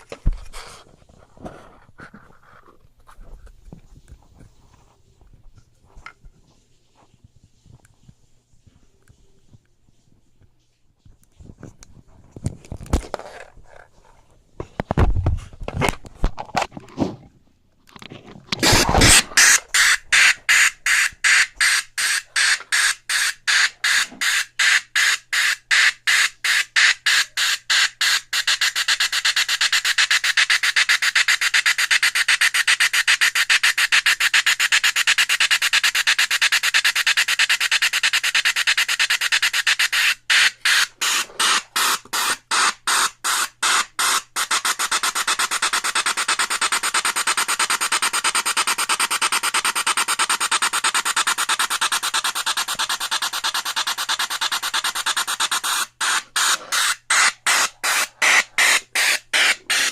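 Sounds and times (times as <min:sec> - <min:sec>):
electronic steam engine chuffs: 0:18.6 - 0:59.9.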